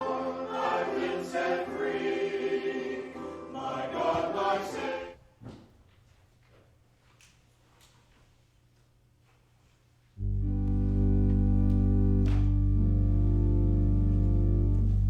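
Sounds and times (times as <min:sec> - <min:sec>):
church choir singing: 0:00.0 - 0:05.2.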